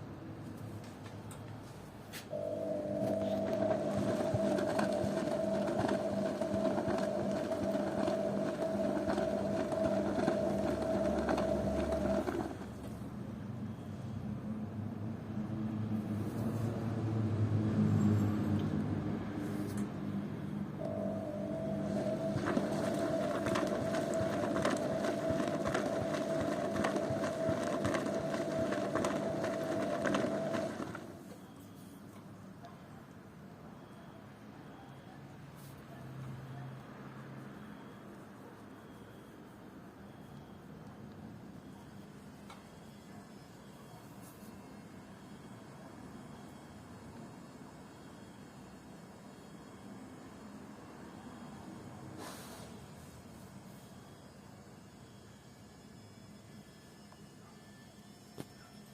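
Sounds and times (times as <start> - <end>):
washing machine running: 2.3 - 13.9, 18.5 - 31.4
washing machine motor whine: 2.3 - 14.2, 15.1 - 32.0, 36.3 - 58.9.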